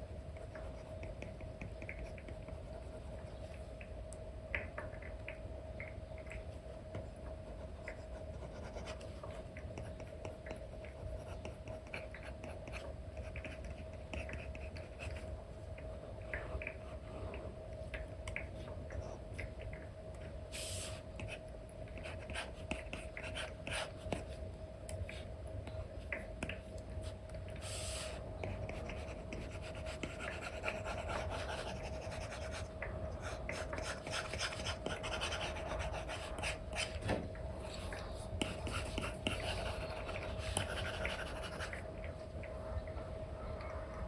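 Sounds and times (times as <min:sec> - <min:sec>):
faint steady hum: 0:00.0 - 0:44.0
stylus scratching on screen: 0:27.0 - 0:37.0, 0:37.7 - 0:41.8.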